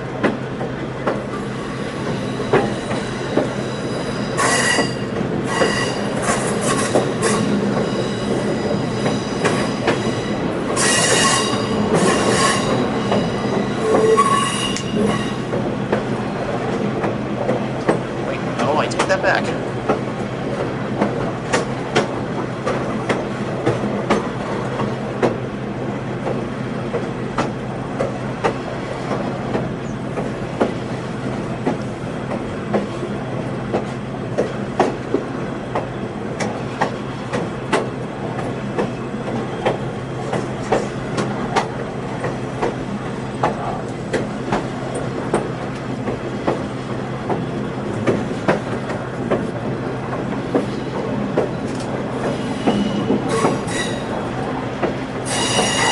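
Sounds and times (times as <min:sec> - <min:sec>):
low train rumble and hum: 0:00.0 - 0:55.9
train wheels clicking over rail joints: 0:00.1 - 0:55.9.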